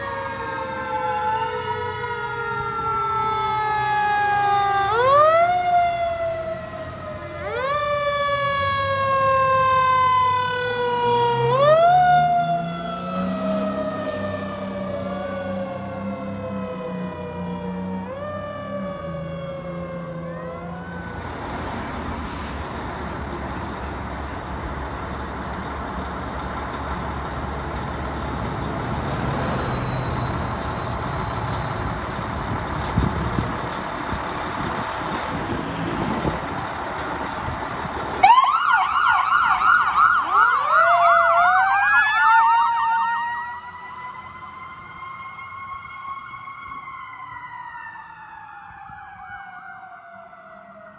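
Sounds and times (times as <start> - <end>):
electronic siren yelp and wail: 0.0 - 21.4, 38.2 - 50.9
siren winding down: 0.0 - 22.1, 38.2 - 50.9
vehicle and road rumble: 0.0 - 50.9.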